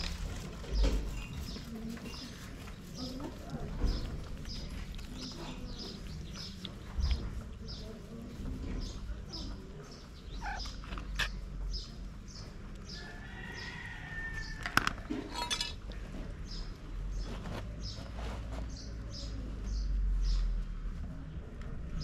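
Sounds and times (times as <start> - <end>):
small bird chirping: 0.7 - 13.1.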